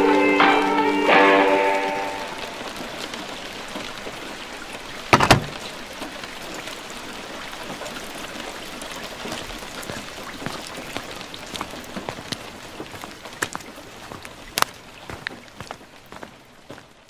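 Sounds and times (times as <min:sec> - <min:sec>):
rain falling on hard ground: 0:00.0 - 0:17.0
water drips and splats: 0:00.0 - 0:17.0
loud knock: 0:05.1 - 0:05.6.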